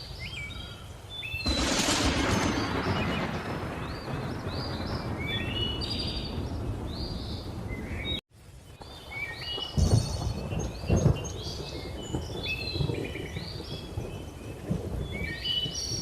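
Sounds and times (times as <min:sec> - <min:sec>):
thunder rumbling: 0:01.4 - 0:08.2, 0:09.6 - 0:16.0
thunder claps: 0:01.5 - 0:08.2, 0:09.6 - 0:16.0.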